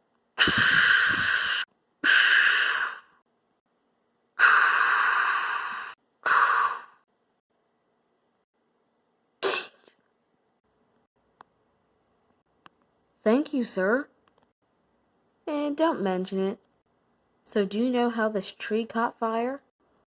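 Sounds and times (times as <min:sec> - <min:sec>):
person making hissing mouth noises: 0:00.4 - 0:03.2, 0:04.4 - 0:07.0, 0:09.4 - 0:10.0.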